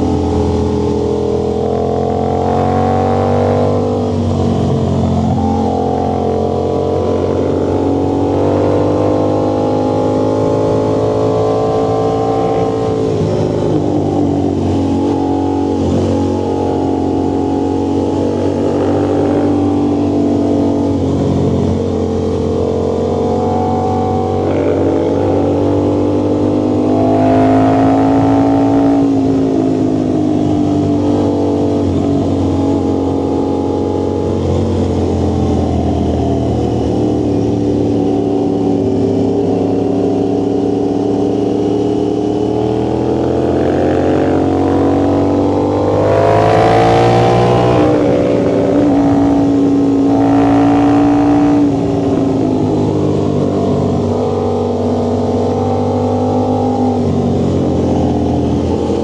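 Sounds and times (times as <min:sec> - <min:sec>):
vehicle engine and exhaust: 0:00.0 - 0:59.0.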